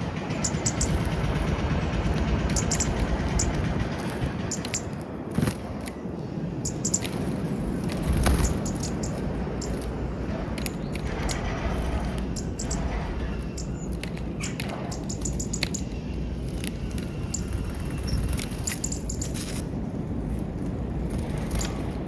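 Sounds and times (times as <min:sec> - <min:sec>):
low rumble: 0:00.0 - 0:22.0
birds pecking at peanuts: 0:06.7 - 0:22.0.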